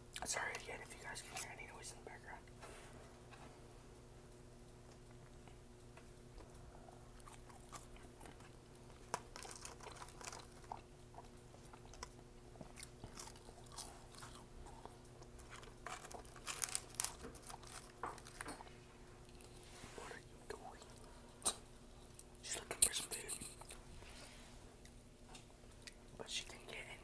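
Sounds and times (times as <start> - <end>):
steady low hum: 0.0 - 27.0
chewing french fries: 4.0 - 19.6, 24.7 - 26.8.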